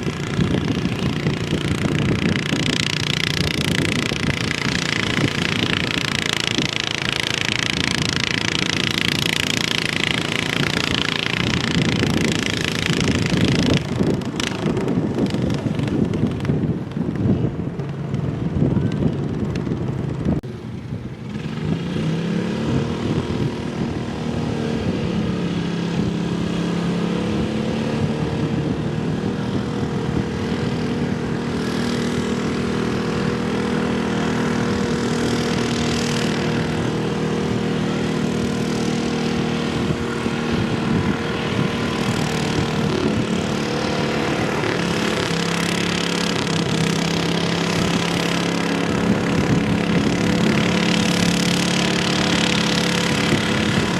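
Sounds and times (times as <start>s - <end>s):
tractor engine at high revs: 0.0s - 53.9s.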